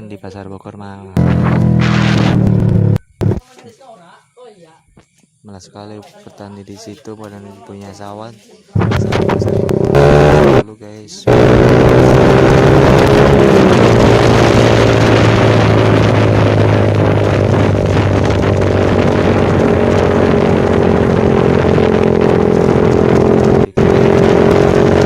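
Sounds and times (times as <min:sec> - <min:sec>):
motorcycle engine droning: 0:01.1 - 0:03.4, 0:08.8 - 0:25.0.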